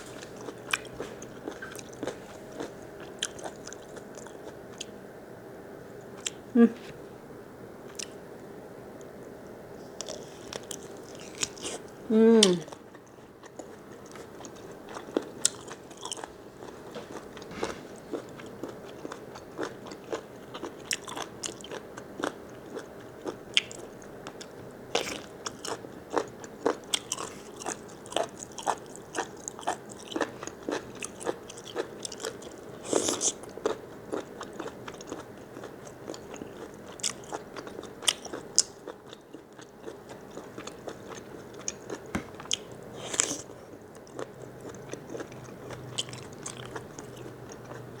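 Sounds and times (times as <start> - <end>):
chewing and biting squid: 12.9 - 47.9.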